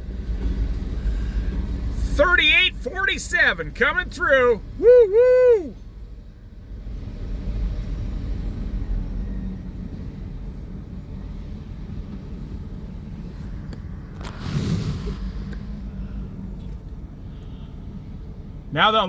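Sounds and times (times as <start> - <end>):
freight train rumbling past: 0.0 - 19.0
rush of noise: 13.2 - 18.8.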